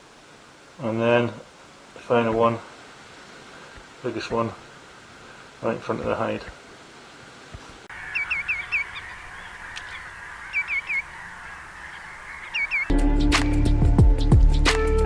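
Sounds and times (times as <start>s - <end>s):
steady background hiss: 0.0s - 12.9s
ringing whistled bird calls: 7.9s - 12.9s
music: 12.9s - 15.0s.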